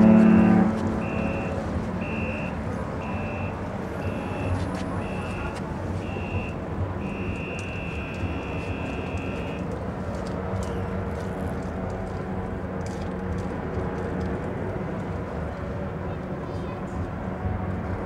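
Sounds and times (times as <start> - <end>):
high electronic beep: 0.0 - 9.6
low engine-like rumble: 0.0 - 18.0.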